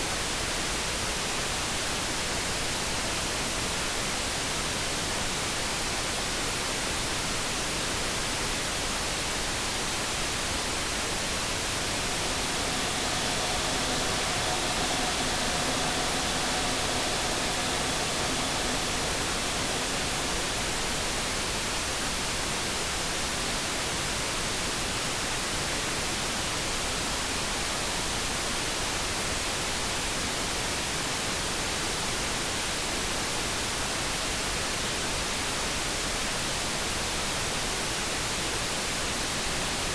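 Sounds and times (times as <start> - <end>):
brown noise hiss: 9.8 - 22.8
electric kettle hum: 11.1 - 21.8.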